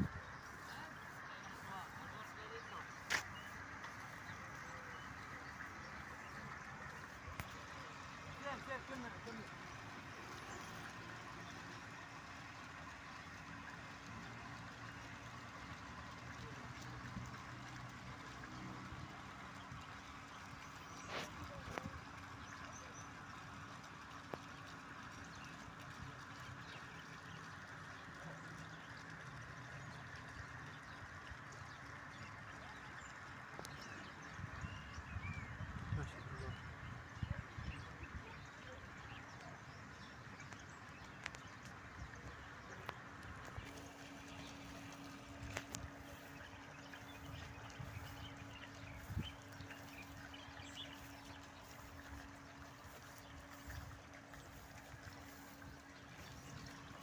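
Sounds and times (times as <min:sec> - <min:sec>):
small birds chirping: 0:00.0 - 0:57.0
low hum: 0:41.3 - 0:57.0.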